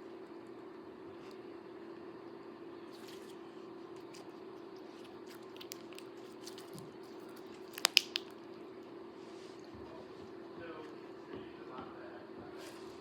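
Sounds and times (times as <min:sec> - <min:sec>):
faint slime crackles: 0:02.9 - 0:08.5
slime squishing by hand: 0:02.9 - 0:08.5
sharp slime pops: 0:07.6 - 0:08.4.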